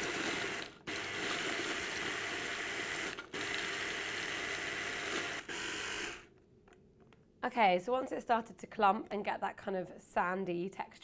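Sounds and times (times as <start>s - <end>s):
food processor motor running: 0.0s - 6.3s.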